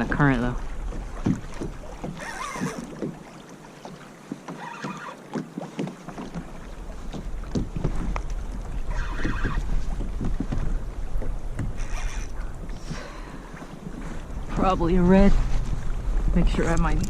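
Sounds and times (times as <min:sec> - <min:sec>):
water splashing: 0:00.0 - 0:17.0
small knocks on kayak: 0:01.1 - 0:03.2, 0:05.3 - 0:08.6, 0:09.9 - 0:11.8
wind rumble on microphone: 0:06.4 - 0:17.0.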